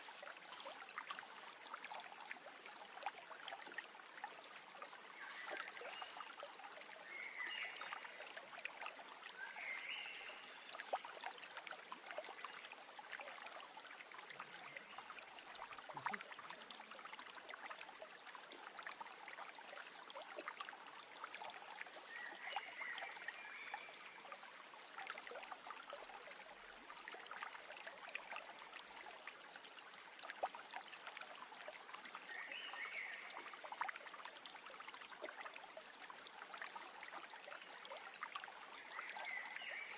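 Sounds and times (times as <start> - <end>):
stream babbling: 0.0 - 39.9
short bird chirps: 5.2 - 6.2.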